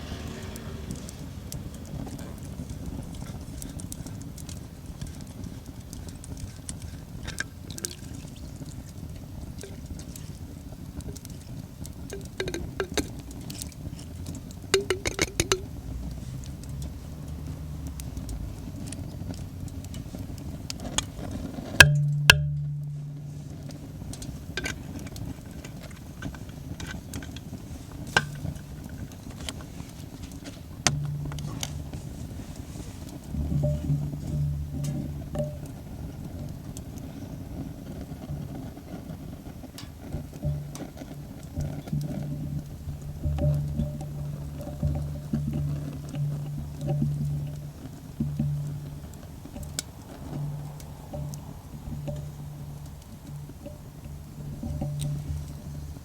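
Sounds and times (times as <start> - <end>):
steady low rumble: 0.0 - 25.4, 27.6 - 56.0
metal cookware clinking: 12.1 - 13.2, 14.8 - 15.7, 33.5 - 35.8.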